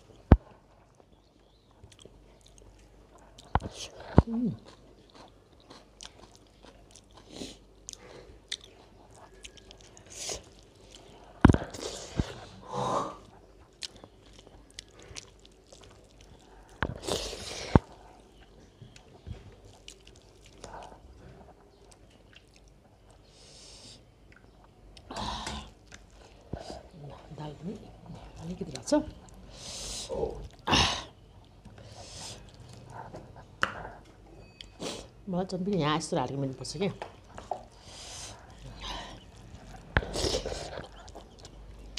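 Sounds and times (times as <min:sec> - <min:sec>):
chewing and lip-smacking: 0:00.1 - 0:12.5, 0:13.2 - 0:23.3, 0:25.7 - 0:27.2, 0:32.2 - 0:34.8, 0:37.1 - 0:41.9
noisy breaths: 0:23.2 - 0:24.1, 0:29.4 - 0:30.2, 0:31.8 - 0:34.0, 0:37.6 - 0:41.0.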